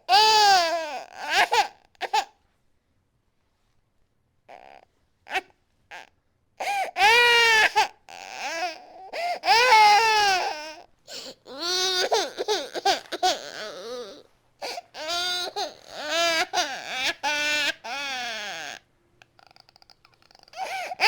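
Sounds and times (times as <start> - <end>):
infant crying: 0.0 - 2.3, 4.5 - 18.8, 19.4 - 21.0
infant gasping for breath: 6.6 - 7.0, 9.1 - 9.5, 11.1 - 11.5, 14.6 - 15.0, 20.3 - 21.0.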